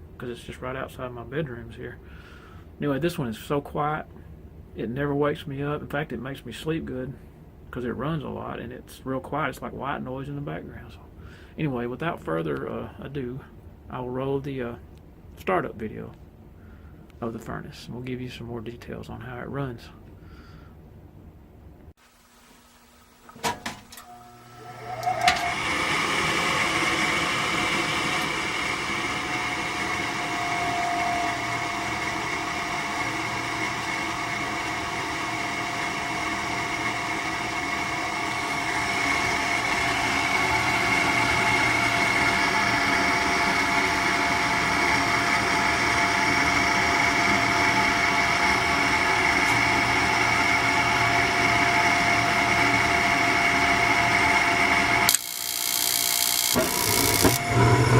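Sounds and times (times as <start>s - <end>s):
gas furnace whirring with whine: 22.2s - 57.9s.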